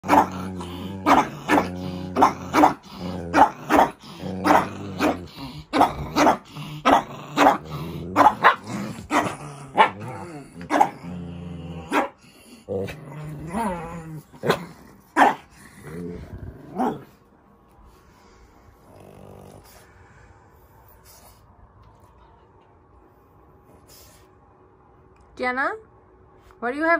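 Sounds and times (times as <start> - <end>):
dogs barking angrily: 0.0 - 15.7, 16.6 - 17.2
dogs growling low: 0.0 - 17.2, 17.9 - 20.2.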